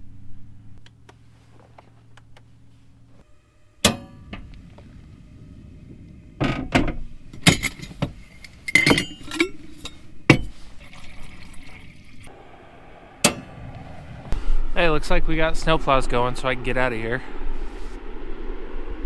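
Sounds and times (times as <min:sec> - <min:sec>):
low steady hum: 0:00.0 - 0:19.0
dishes and cups clinking: 0:07.4 - 0:12.3.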